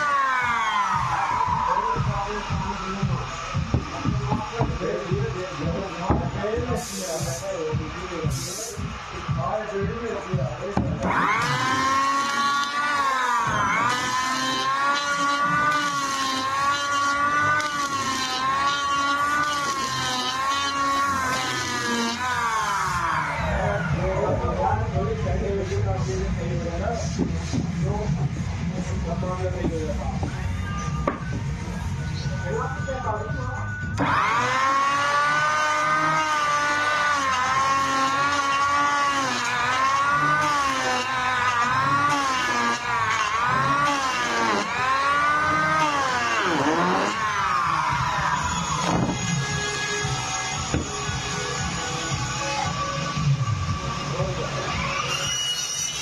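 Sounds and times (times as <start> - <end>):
electric planer motor whine: 0.0 - 56.0
hiss of wood cutting: 4.9 - 9.4, 11.0 - 23.4, 34.0 - 53.1.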